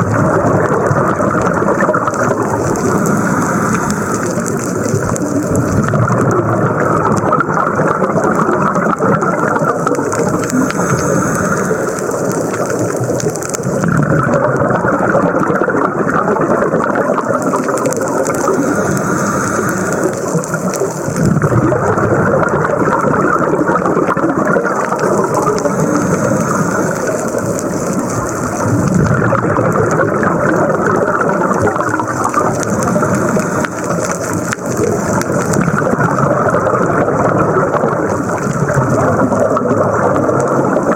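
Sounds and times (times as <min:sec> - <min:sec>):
exhaled bubbles rushing: 0:00.0 - 0:40.9
scuba regulator hiss: 0:02.5 - 0:05.7, 0:10.2 - 0:12.9, 0:18.0 - 0:21.1, 0:25.2 - 0:28.0, 0:32.7 - 0:34.4.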